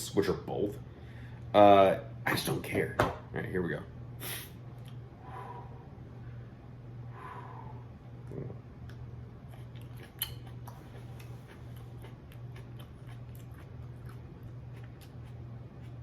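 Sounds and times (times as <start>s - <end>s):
steady low hum: 0.0s - 16.0s
person chewing crunchy pepper: 8.3s - 16.0s.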